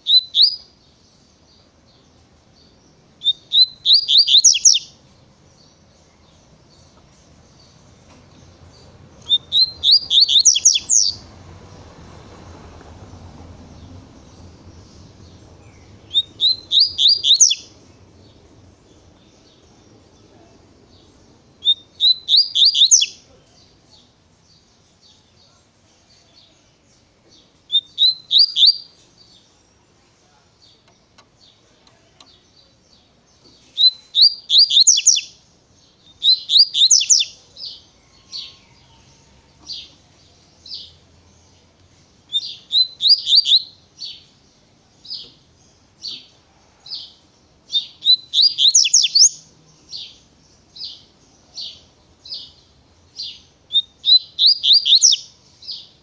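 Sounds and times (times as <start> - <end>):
single bird chirps: 3.2 - 5.0, 9.2 - 11.2, 15.6 - 17.7, 47.7 - 49.4
bird singing high sweeping notes: 7.3 - 11.8, 13.0 - 23.3, 47.7 - 51.1.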